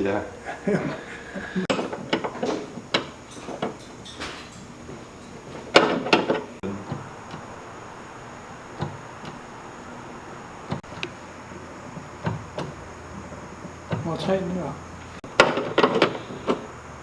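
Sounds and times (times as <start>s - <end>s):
tools clinking and knocking: 0.4s - 16.8s.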